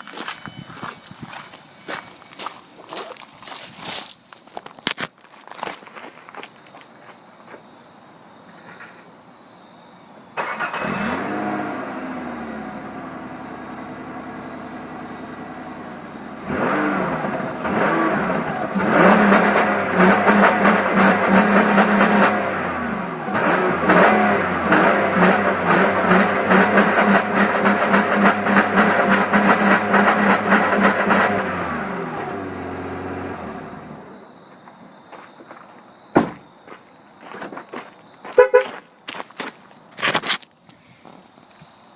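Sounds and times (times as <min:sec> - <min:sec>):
car engine starting and revving: 0:10.4 - 0:34.2.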